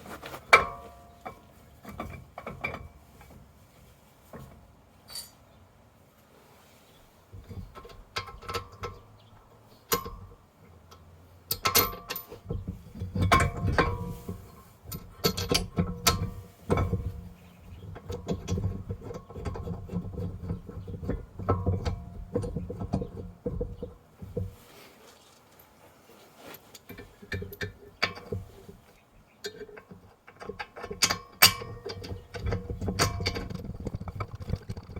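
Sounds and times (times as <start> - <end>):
metal clinks and knocks: 4.4 - 5.5, 10.9 - 24.7, 29.4 - 34.9.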